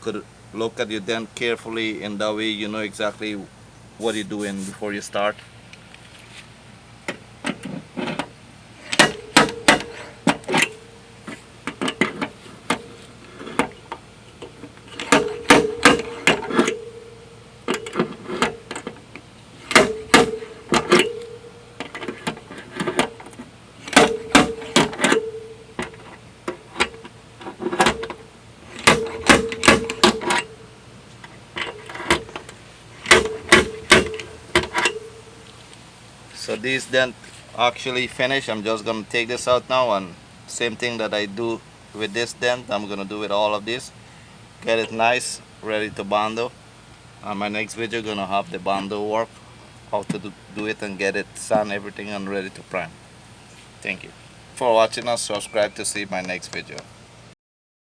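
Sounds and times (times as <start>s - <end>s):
sheet metal ringing: 8.8s - 27.2s, 27.8s - 35.5s
tools knocking on sheet metal: 8.9s - 10.7s, 15.0s - 16.9s, 19.7s - 23.2s, 23.9s - 26.0s, 27.7s - 30.6s, 31.6s - 35.3s.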